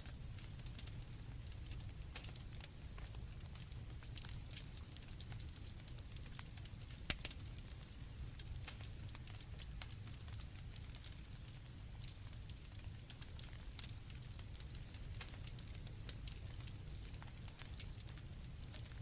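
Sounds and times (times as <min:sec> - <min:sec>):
campfire crackling and popping: 0:00.0 - 0:19.0
low rumble of burning wood: 0:00.0 - 0:19.0.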